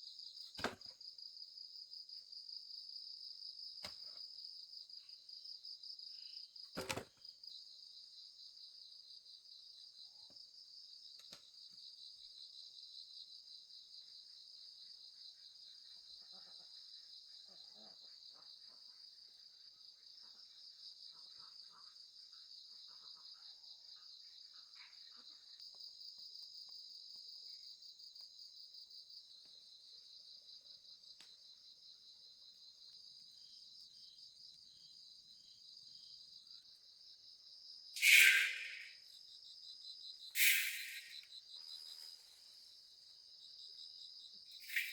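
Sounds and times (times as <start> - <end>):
crickets trilling: 32.3 - 44.9
sharp click: 38.0 - 38.9.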